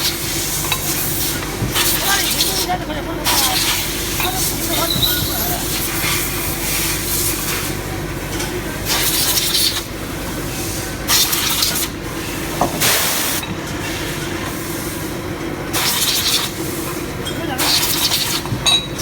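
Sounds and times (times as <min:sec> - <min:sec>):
machine hum: 0:00.3 - 0:07.2.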